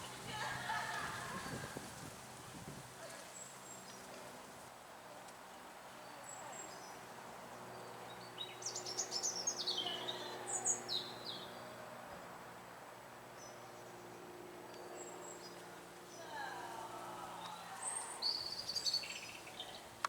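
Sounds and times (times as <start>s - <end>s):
songbird singing: 3.0s - 12.3s, 13.3s - 20.0s.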